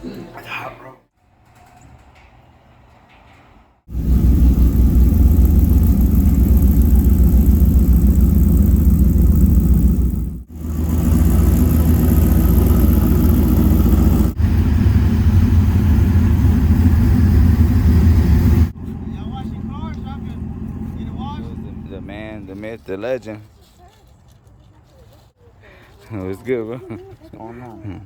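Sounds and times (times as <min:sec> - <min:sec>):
engine deep exhaust rumble: 0:03.9 - 0:22.8.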